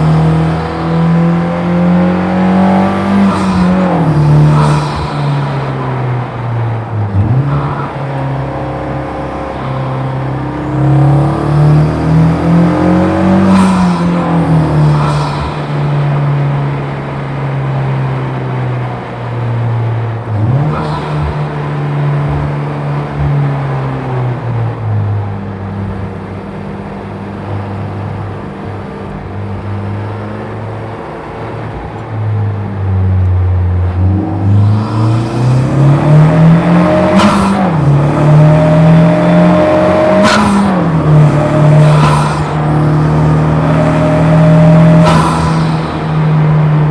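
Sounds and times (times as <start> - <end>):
race car engine accelerating: 0.0 - 46.9.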